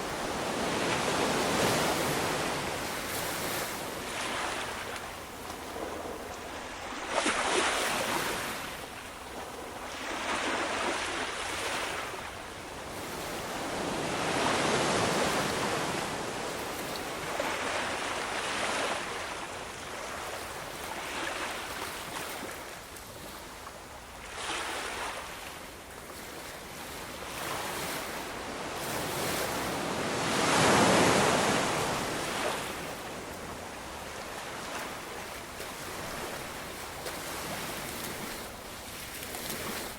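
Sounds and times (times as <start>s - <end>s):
ocean waves breaking: 0.0s - 12.3s, 26.2s - 39.9s.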